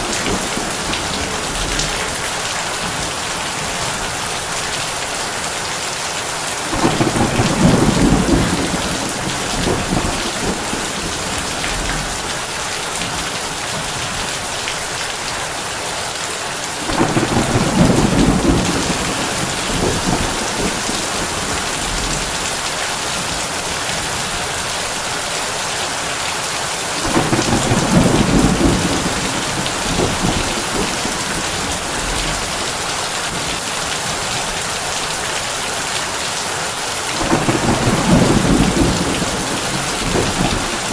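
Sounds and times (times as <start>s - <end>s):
low thunder rumbling: 0.0s - 4.4s, 6.7s - 14.3s, 16.9s - 24.4s, 27.0s - 34.3s, 37.2s - 40.9s
heavy rain on a tin roof: 0.0s - 40.9s.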